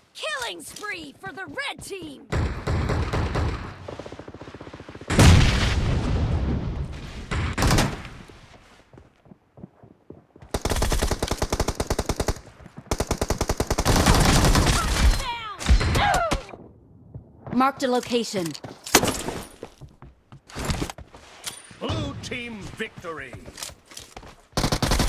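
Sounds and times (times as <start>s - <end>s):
video game automatic gunfire: 10.5s - 14.9s, 24.6s - 25.0s.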